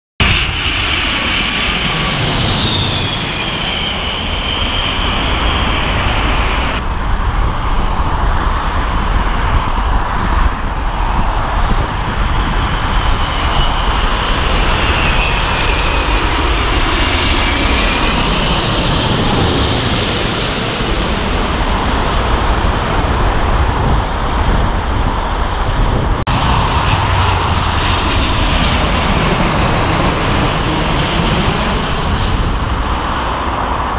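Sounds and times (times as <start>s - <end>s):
jet airliner passing overhead: 0.2s - 33.9s.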